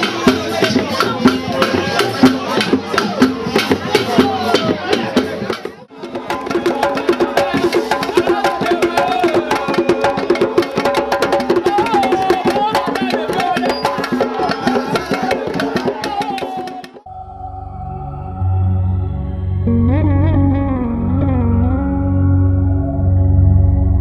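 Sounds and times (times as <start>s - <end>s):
fast dense drumming: 0.0s - 17.1s
wooden percussion: 0.0s - 17.2s
sustained low-pitched sound: 17.0s - 24.0s
wavering melody line: 17.1s - 24.0s.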